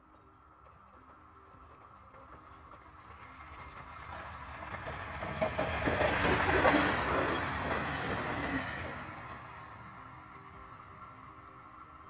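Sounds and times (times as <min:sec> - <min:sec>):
train passing by: 0:00.0 - 0:12.0
wheels clattering over rails: 0:01.6 - 0:09.2.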